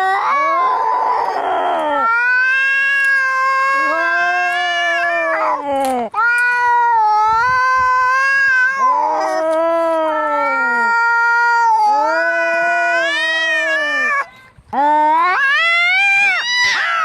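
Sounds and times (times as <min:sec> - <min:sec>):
cats yowling: 0:00.0 - 0:17.0.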